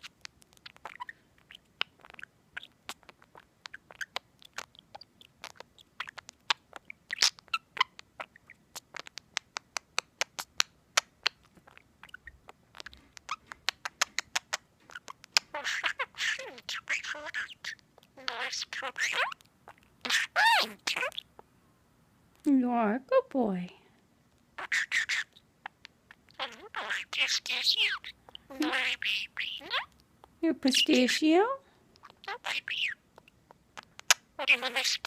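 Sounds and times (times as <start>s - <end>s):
faint bird chirps: 0.0s - 9.6s, 10.2s - 21.6s, 24.6s - 30.0s, 32.0s - 35.0s
budgie beak clicks and taps: 8.8s - 11.8s.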